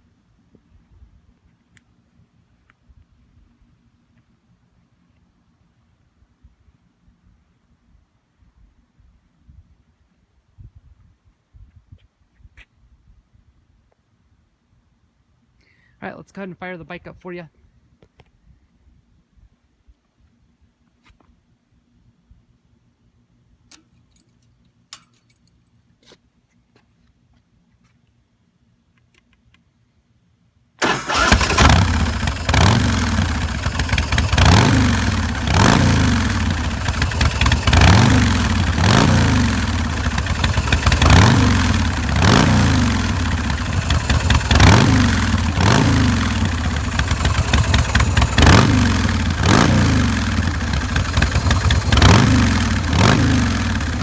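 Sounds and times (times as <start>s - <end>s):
motorcycle engine running: 30.8s - 54.0s.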